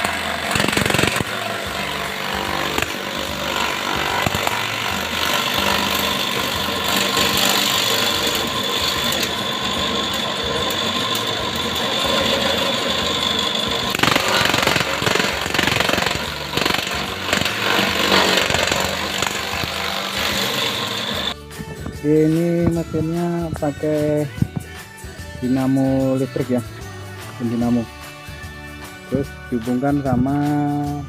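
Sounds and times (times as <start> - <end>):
electric motor whining: 0.0 - 21.4
grass being chopped: 0.0 - 21.4.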